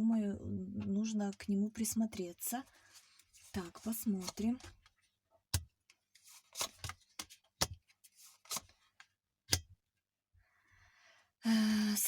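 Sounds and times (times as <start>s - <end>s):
soft card rustling: 2.0s - 5.0s, 6.1s - 9.1s
cards slapping on a table: 6.5s - 7.8s.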